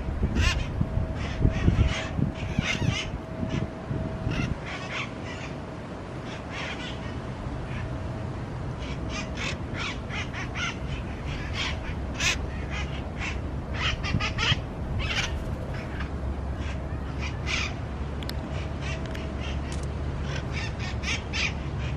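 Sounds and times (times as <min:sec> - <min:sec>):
parrot harsh calls: 0:00.4 - 0:03.6, 0:04.3 - 0:05.6, 0:08.8 - 0:17.8, 0:18.5 - 0:21.9.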